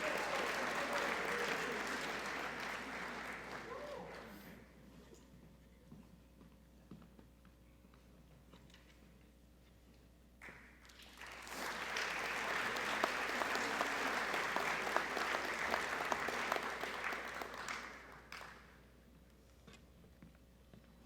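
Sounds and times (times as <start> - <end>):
audience clapping: 0.0 - 4.5, 10.4 - 18.8.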